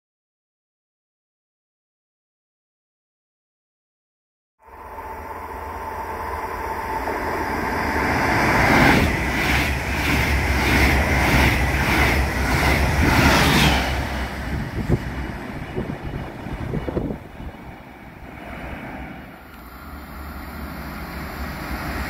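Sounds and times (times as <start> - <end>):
train passing: 4.6 - 22.0
wind rumble on microphone: 14.2 - 19.0.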